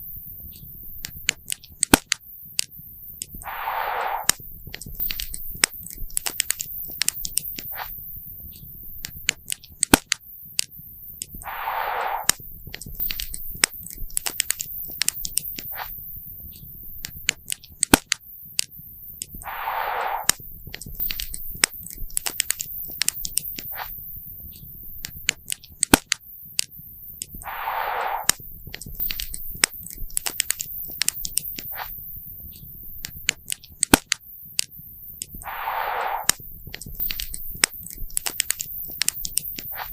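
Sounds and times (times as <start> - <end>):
fire hissing bursts: 3.4 - 4.4, 11.4 - 12.4, 19.4 - 20.4, 27.4 - 28.4, 35.4 - 36.5.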